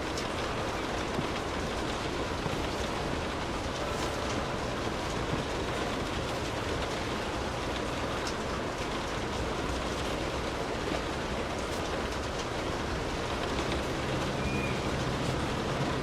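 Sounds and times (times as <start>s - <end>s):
faint raindrop ticks: 0.0s - 16.0s
steady rain falling: 0.0s - 16.0s.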